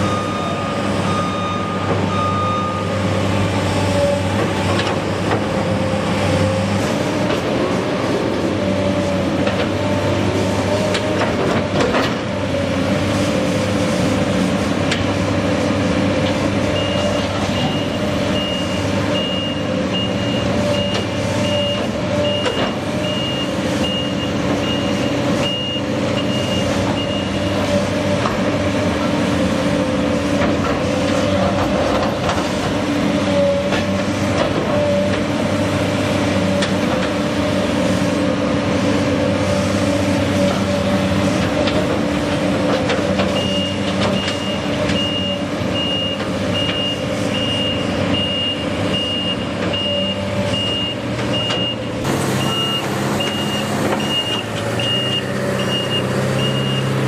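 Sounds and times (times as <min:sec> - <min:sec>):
reversing alarm beeping: 0:00.0 - 0:04.3, 0:16.7 - 0:27.6, 0:43.3 - 0:57.0
heavy machine engine running: 0:00.0 - 0:57.0.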